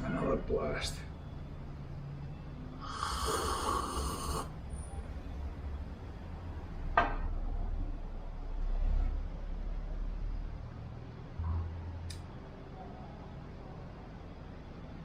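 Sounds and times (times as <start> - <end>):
slurping sip of coffee: 2.9 - 4.5.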